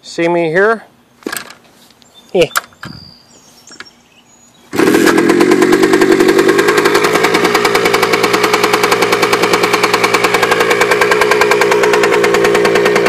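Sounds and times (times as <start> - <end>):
motorcycle engine starting and running: 4.7 - 13.0.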